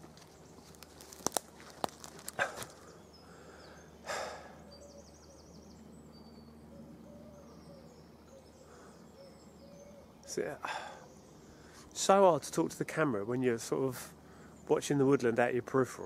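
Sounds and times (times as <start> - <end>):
songbird trilling: 2.8 - 11.8.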